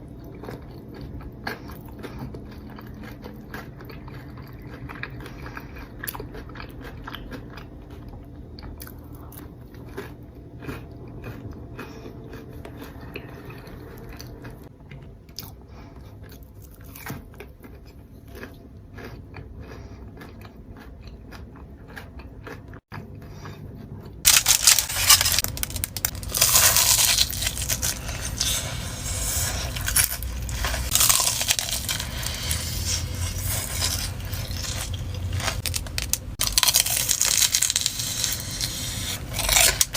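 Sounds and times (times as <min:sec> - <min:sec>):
crunching fried batter: 0:00.0 - 0:39.9
wet chewing: 0:00.0 - 0:39.9.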